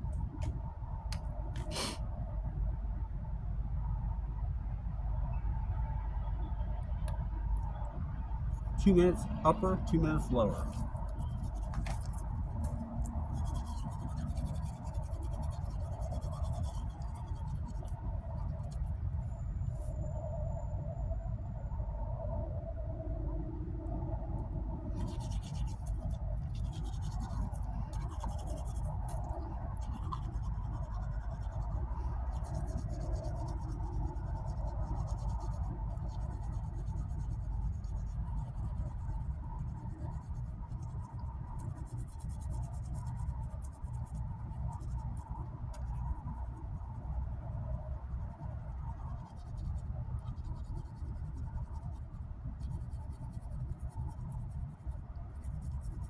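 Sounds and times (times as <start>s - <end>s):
steady low rumble: 0.0s - 56.0s
toothbrush scrubbing teeth: 8.9s - 18.9s, 25.0s - 44.1s.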